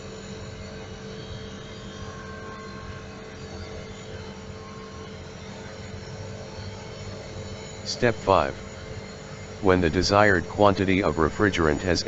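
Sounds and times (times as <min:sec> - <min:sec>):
air conditioner humming: 0:07.9 - 0:08.7, 0:09.6 - 0:12.0.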